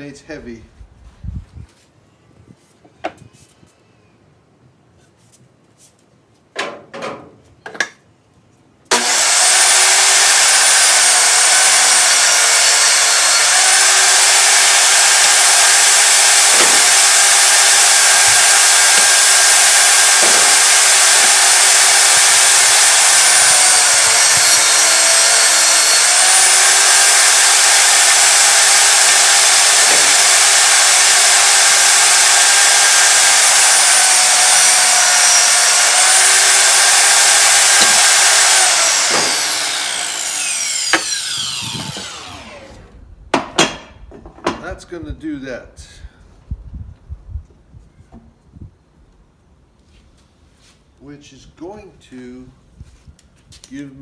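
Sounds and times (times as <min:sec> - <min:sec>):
electric power tool running: 0:08.9 - 0:43.0
wood knocking: 0:37.8 - 0:38.1, 0:40.9 - 0:42.2.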